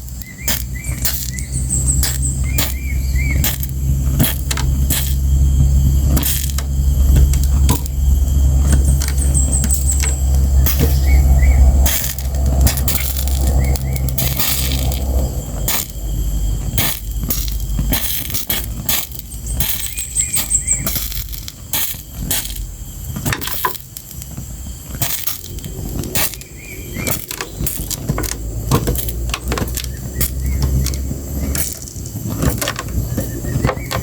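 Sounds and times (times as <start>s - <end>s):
fire crackling and popping: 0.0s - 34.0s
low rumble: 0.7s - 21.4s.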